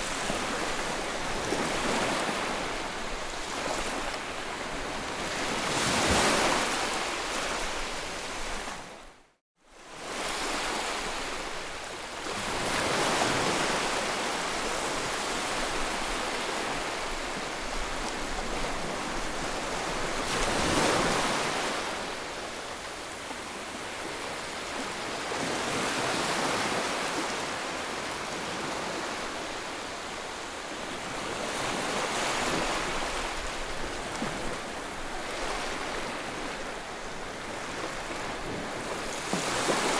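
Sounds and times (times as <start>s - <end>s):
ocean waves breaking: 12.2s - 39.9s.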